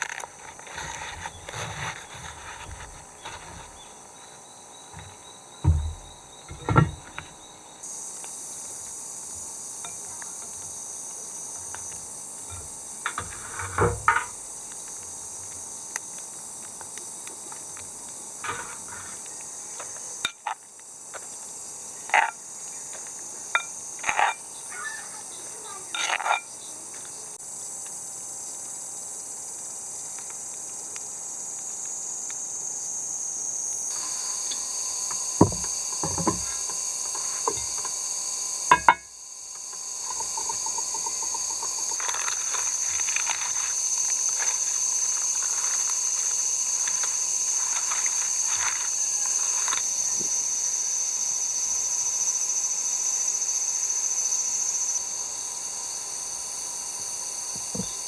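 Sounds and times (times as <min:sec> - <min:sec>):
insects buzzing: 0:00.0 - 0:58.0
short knocks: 0:05.0 - 0:07.3, 0:35.4 - 0:37.9, 0:38.7 - 0:39.1.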